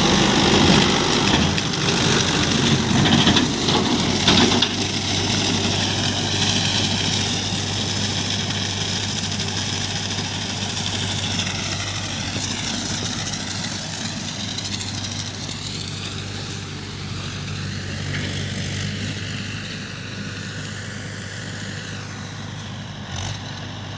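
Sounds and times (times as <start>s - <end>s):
tractor diesel engine running: 0.0s - 23.9s.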